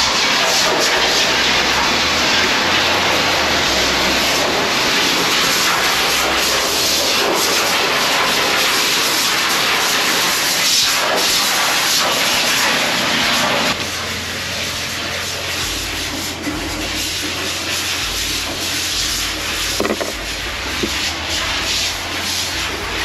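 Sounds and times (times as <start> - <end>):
vacuum suction and water jetting hiss: 0.4 - 13.1.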